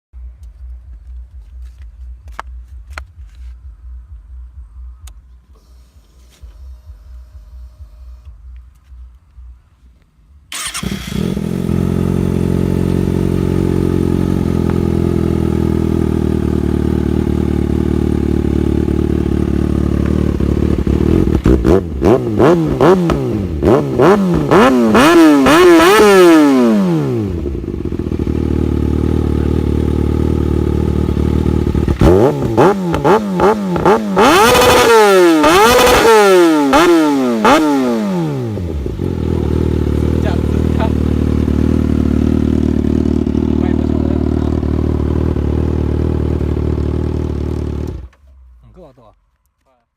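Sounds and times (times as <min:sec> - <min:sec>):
motorcycle engine idling: 0:10.5 - 0:22.0, 0:27.1 - 0:34.5, 0:38.4 - 0:48.6
engine revving throttle blips: 0:10.5 - 0:48.6.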